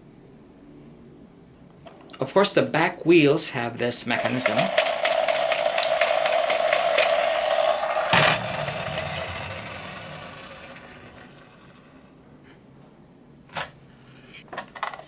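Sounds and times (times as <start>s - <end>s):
toy train gears whirring: 4.0s - 12.1s.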